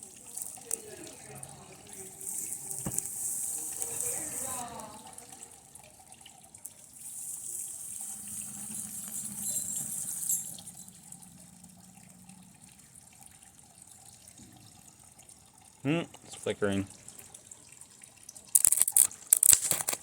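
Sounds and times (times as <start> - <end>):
circuit board sizzling: 0.0 - 5.0, 7.0 - 11.0.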